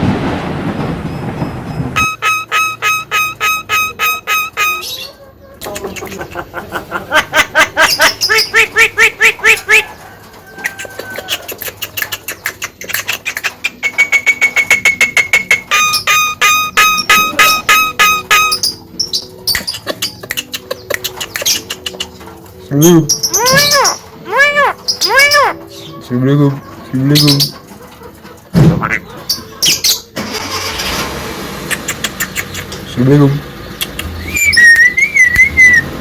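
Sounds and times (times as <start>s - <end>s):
bird whistling and chattering: 2.0s - 6.2s, 7.8s - 9.9s, 10.7s - 22.2s, 22.8s - 25.9s, 31.7s - 32.9s, 33.8s - 36.0s.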